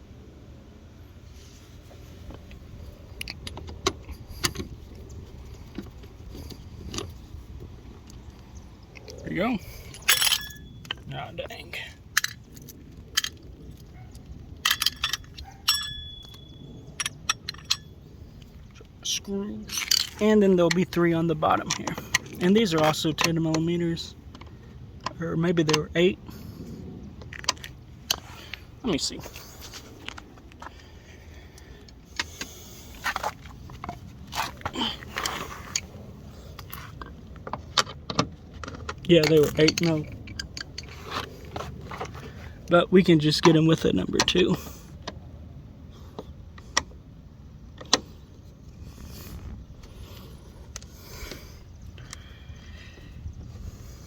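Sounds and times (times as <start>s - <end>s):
low steady hum: 0.0s - 54.0s
tools and metal screws clinking: 2.3s - 26.1s, 27.2s - 44.7s
metal tools clinking: 9.0s - 23.7s, 38.6s - 42.4s.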